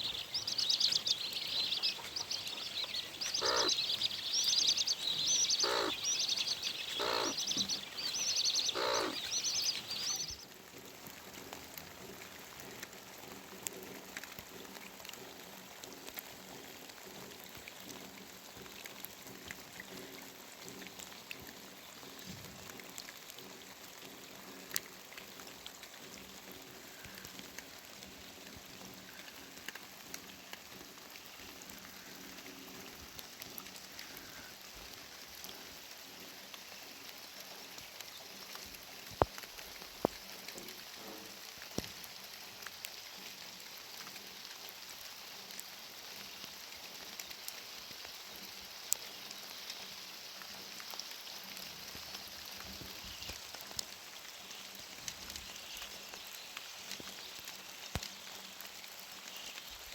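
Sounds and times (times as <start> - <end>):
small birds chirping: 0.0 - 10.4
faint patter of small ticks: 0.0 - 59.9.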